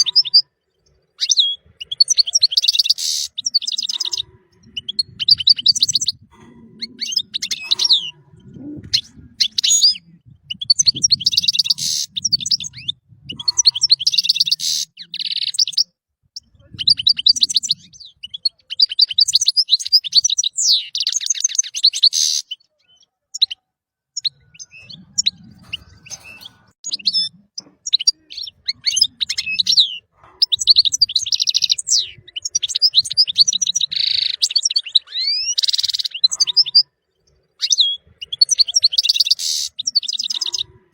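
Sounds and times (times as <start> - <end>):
goldfinch singing: 0.0 - 23.6.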